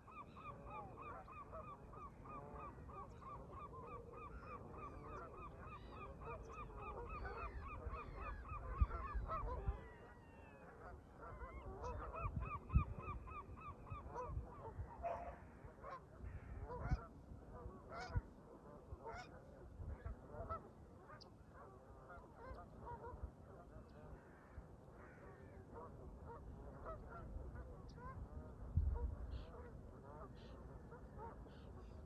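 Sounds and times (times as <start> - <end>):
wind rumbling on microphone: 6.5 - 10.6, 11.3 - 15.3, 16.2 - 19.0, 19.6 - 20.5, 26.4 - 30.0.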